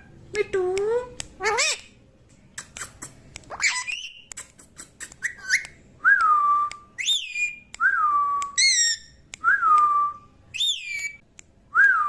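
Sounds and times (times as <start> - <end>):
parrot clicks: 2.6 - 5.8.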